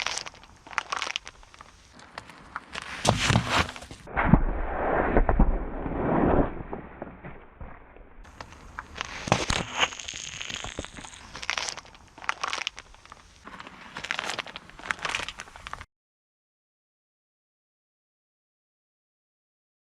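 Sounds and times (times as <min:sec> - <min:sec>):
objects crunching under a tyre: 0:00.0 - 0:15.9
low rumble: 0:03.1 - 0:08.3.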